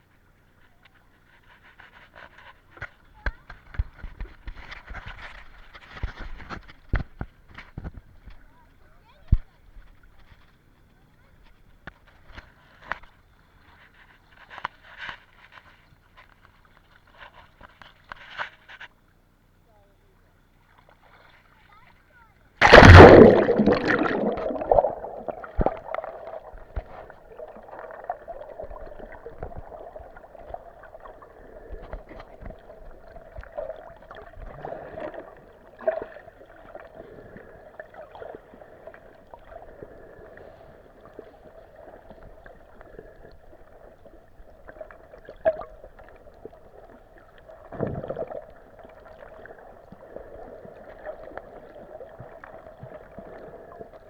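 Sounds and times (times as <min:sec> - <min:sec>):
gurgling burst: 0:22.6 - 0:32.8
underwater clicks and knocks: 0:22.6 - 0:35.3
underwater hiss and hum: 0:22.6 - 0:54.0.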